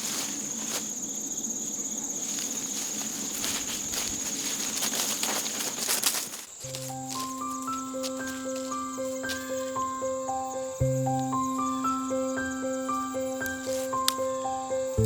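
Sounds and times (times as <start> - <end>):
insects trilling: 0.0 - 15.0
light clicks and rustles: 2.3 - 9.7.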